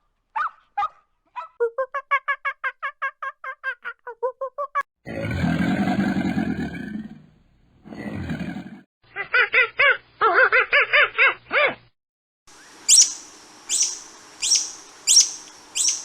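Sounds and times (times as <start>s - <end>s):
long low animal roars: 5.1s - 7.3s, 7.9s - 8.8s.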